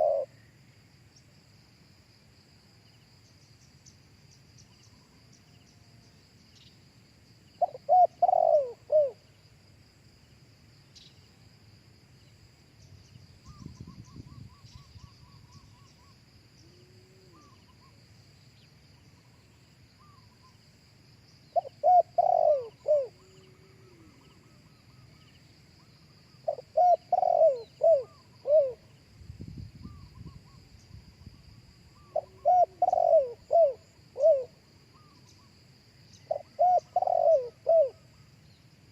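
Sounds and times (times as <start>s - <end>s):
dove cooing: 0.0s - 0.4s, 7.6s - 9.2s, 21.6s - 25.1s, 26.4s - 28.9s, 32.0s - 35.2s, 36.3s - 38.1s.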